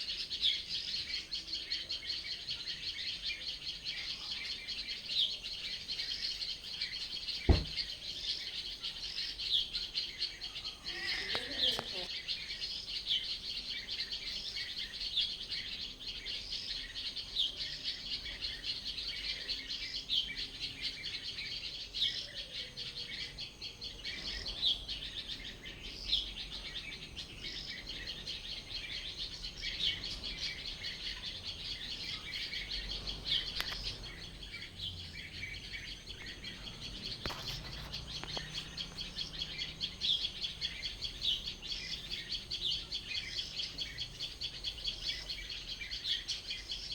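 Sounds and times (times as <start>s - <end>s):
birds chirping and singing: 0.0s - 46.9s.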